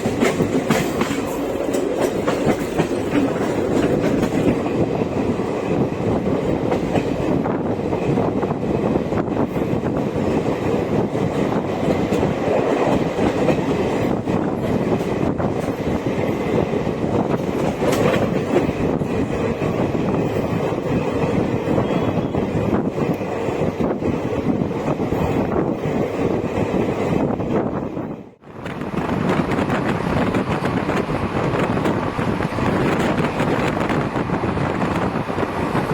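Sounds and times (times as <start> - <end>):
wheels clicking over rail joints: 0.0 - 5.0
train wheels rumbling on rail: 0.0 - 35.9
wind buffeting microphone: 0.0 - 35.9.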